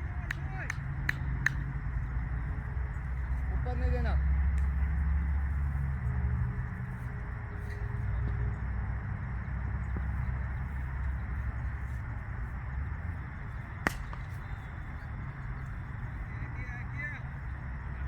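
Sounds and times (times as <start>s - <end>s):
low open-air rumble: 0.0s - 18.0s
cricket ball striking bat: 13.8s - 14.7s.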